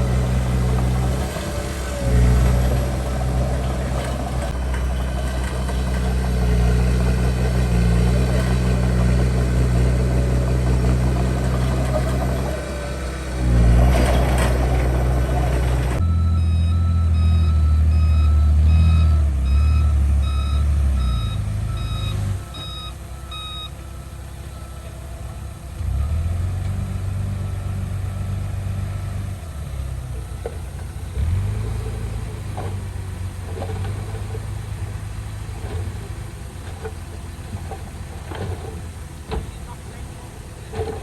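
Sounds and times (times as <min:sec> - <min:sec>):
diesel engine running: 0:00.0 - 0:41.0
reversing alarm beeping: 0:16.0 - 0:24.9.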